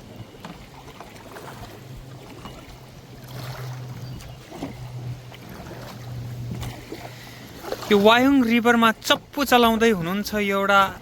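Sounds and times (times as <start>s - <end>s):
steady low hum: 0.0s - 7.9s
kayak paddles splashing in water: 0.0s - 11.0s.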